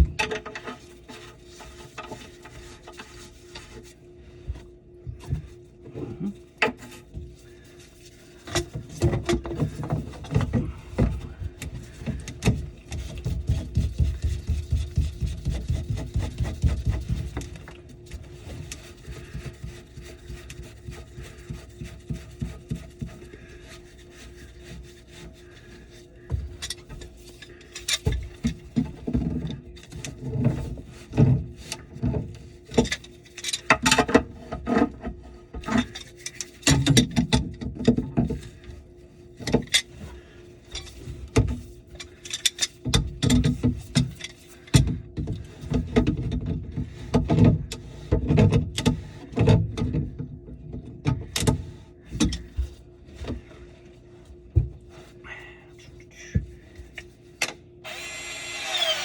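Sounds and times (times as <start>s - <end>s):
tools and parts clattering: 0.0s - 0.9s
faint steady hum: 0.0s - 59.0s.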